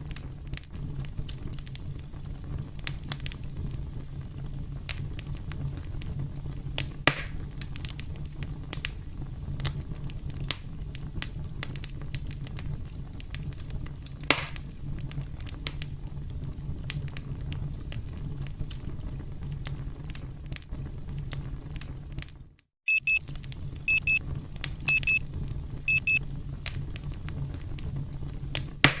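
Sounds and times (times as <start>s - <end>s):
campfire crackling: 0.0s - 22.4s, 23.1s - 29.0s
electronic alarm double beeps: 22.9s - 23.2s, 23.9s - 24.2s, 24.9s - 25.2s, 25.9s - 26.2s.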